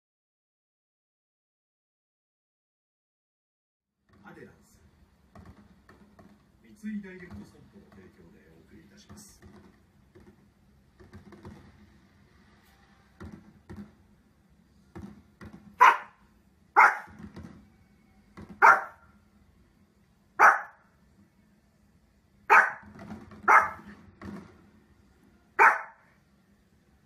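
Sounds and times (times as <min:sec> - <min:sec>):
small dog barking: 0:15.8 - 0:16.2, 0:16.8 - 0:17.2, 0:18.6 - 0:19.0, 0:20.4 - 0:20.8, 0:22.5 - 0:22.9, 0:23.5 - 0:23.9, 0:25.6 - 0:26.1.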